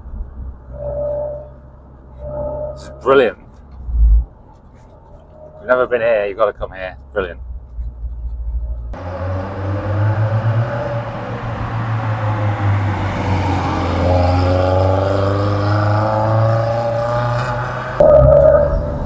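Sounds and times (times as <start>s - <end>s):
steady engine drone: 0.0s - 6.0s, 8.3s - 19.0s
sports car accelerating past: 9.0s - 19.0s.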